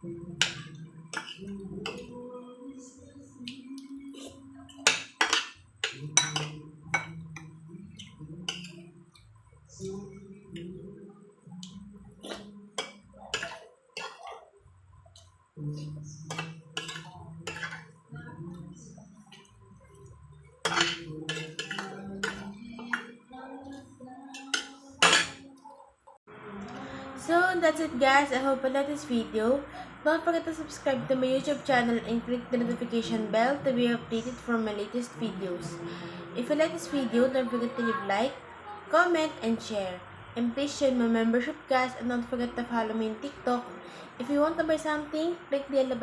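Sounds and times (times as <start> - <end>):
low held background tones: 0.0 - 46.0
spoon clinking and scraping bowl: 0.4 - 2.2, 4.1 - 8.9, 12.2 - 14.4, 15.2 - 17.9, 19.3 - 25.5
slurping: 11.6 - 12.6.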